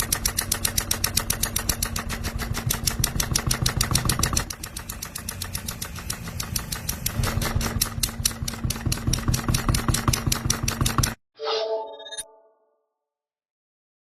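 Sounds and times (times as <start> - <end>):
miniature steam engine strokes: 0.0 - 11.2.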